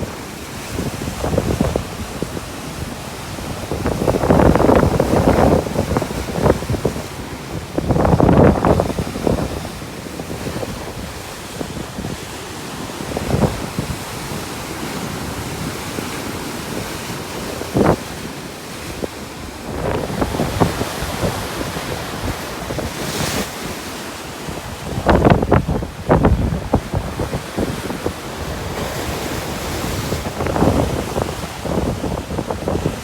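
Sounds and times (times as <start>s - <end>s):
sea surf breaking: 0.0s - 33.0s
wind on microphone: 0.0s - 33.0s.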